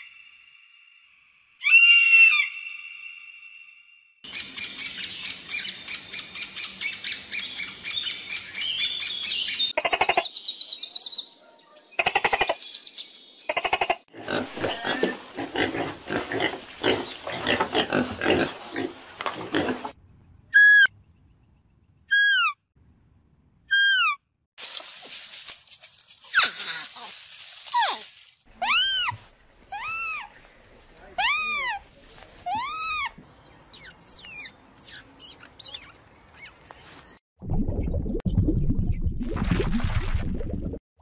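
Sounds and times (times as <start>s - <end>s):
piglets squealing: 22.1s - 22.6s, 23.7s - 24.2s, 28.6s - 30.3s, 31.2s - 31.8s, 32.5s - 37.2s
high bird calls: 32.5s - 37.2s.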